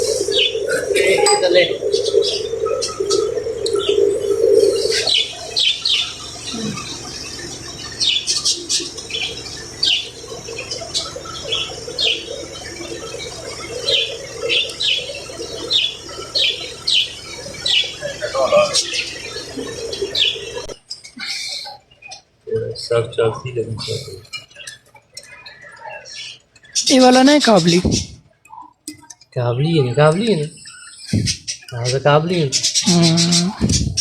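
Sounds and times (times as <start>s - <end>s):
steady hum: 0.0s - 20.9s, 29.8s - 31.6s, 32.3s - 34.0s
small birds chirping: 0.0s - 34.0s.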